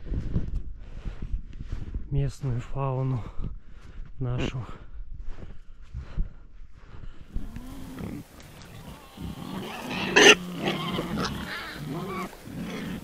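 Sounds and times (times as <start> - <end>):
wild boar grunting: 7.3 - 13.0.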